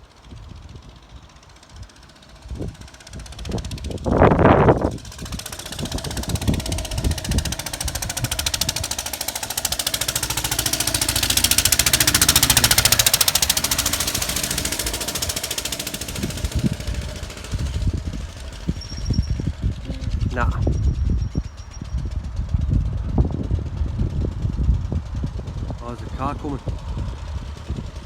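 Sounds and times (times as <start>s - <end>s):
stationary engine running: 0.0s - 28.0s.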